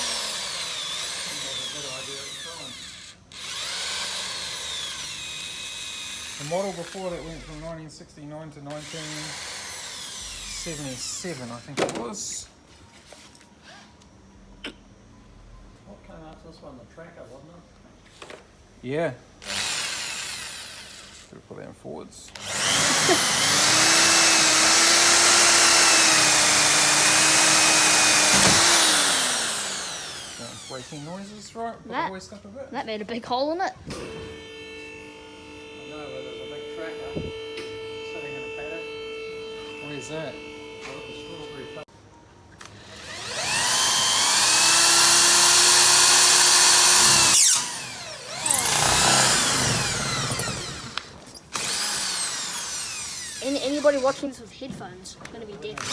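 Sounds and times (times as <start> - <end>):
electric drill whining: 0.0 - 7.8, 8.7 - 11.8, 19.4 - 21.3, 22.4 - 31.5, 33.9 - 41.8, 42.6 - 54.4, 55.6 - 55.9
electric motor running: 0.0 - 7.8, 8.7 - 11.7, 19.4 - 21.3, 22.4 - 31.5, 42.7 - 54.4, 55.6 - 55.9.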